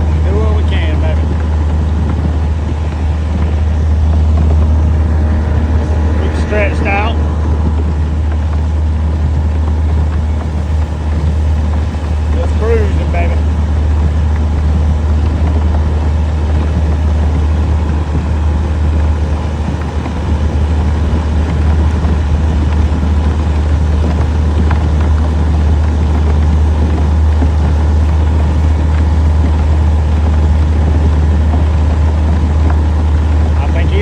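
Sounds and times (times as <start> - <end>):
outboard motor running: 0.0 - 34.0.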